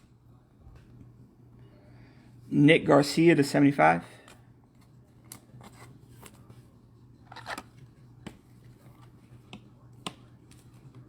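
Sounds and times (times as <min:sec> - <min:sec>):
faint low hum: 0:00.0 - 0:11.0
cards being shuffled by hand: 0:04.3 - 0:11.0.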